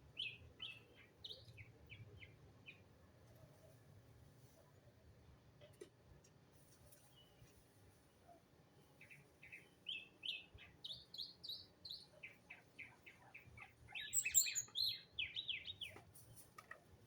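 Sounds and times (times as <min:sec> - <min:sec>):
songbird chirping: 0:09.0 - 0:16.0.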